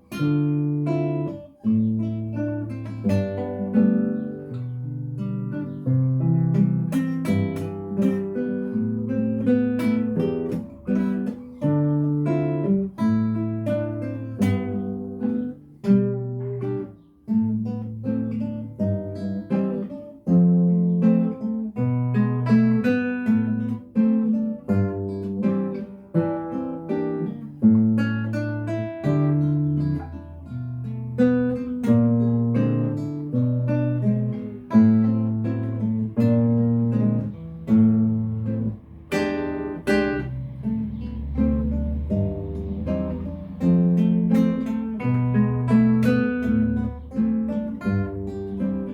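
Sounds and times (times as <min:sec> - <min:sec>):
acoustic guitar music: 0:00.0 - 0:48.9.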